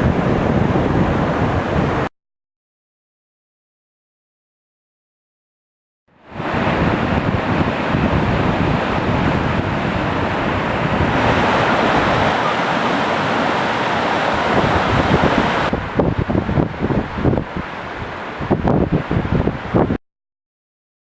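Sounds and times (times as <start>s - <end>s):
wind buffeting microphone: 0.0s - 2.1s, 6.4s - 20.0s
surf washing onto beach: 6.3s - 20.0s.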